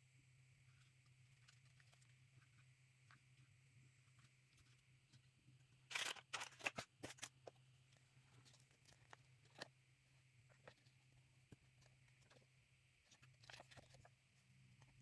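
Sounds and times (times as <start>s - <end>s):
packaging crinkling: 5.9s - 7.5s.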